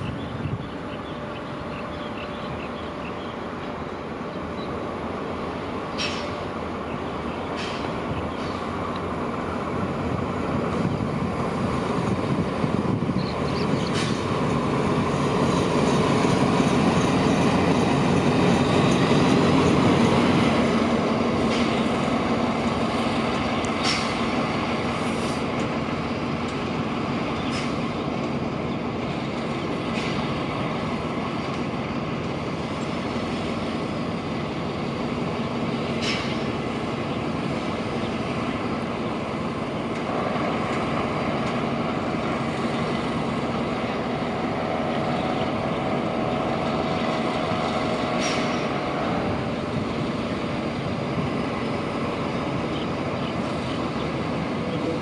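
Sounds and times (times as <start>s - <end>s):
train rumbling on tracks: 0.0s - 55.0s.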